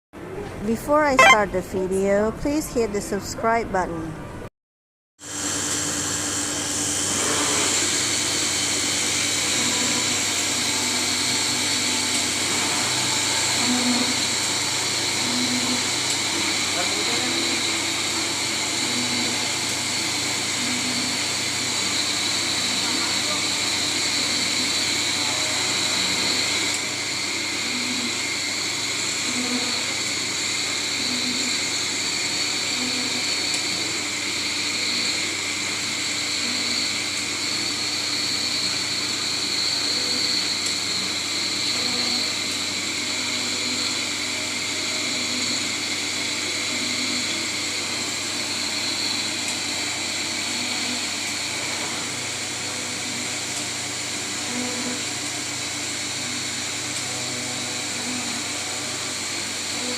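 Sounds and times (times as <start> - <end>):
small repeating pulse: 1.2 - 1.4
boring machine whining: 9.3 - 59.9.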